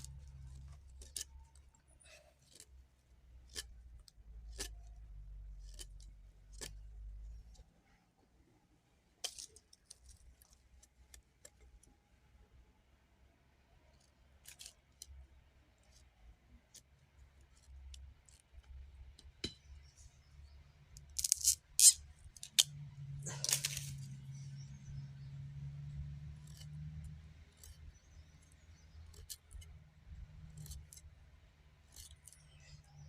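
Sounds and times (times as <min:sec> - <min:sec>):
small objects clicking and snapping: 0:00.0 - 0:02.8, 0:03.4 - 0:05.0, 0:05.6 - 0:07.6, 0:09.2 - 0:11.9, 0:14.4 - 0:15.2, 0:20.9 - 0:24.2, 0:25.9 - 0:29.8, 0:30.4 - 0:31.2, 0:31.8 - 0:33.0.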